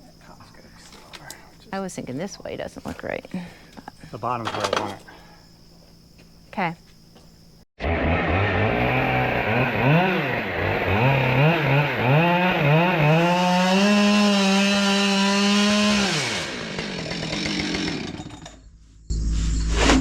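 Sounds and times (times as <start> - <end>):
chainsaw revving: 7.8 - 18.6.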